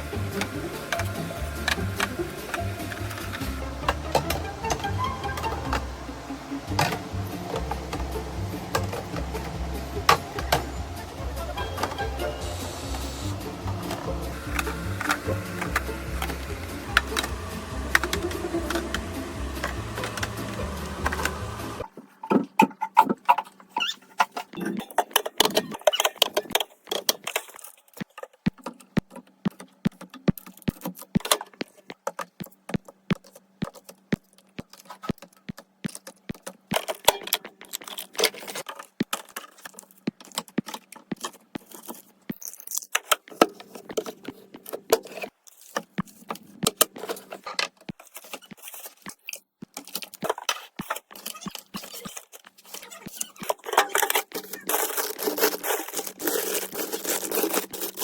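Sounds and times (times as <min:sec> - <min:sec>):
packaging crinkling and rustling: 0:33.2 - 0:58.0.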